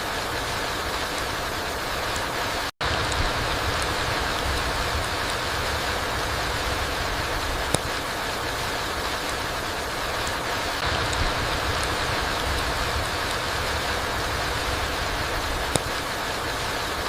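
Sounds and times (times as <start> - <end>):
steady rain on forest floor: 0.0 - 17.0
sharp tick: 7.6 - 8.0, 15.6 - 16.0.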